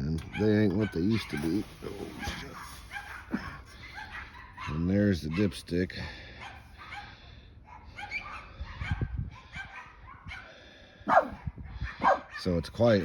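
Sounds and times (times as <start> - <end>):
dogs yapping: 2.2 - 5.5, 6.4 - 10.5, 11.1 - 12.5
dog yelping: 11.1 - 12.5.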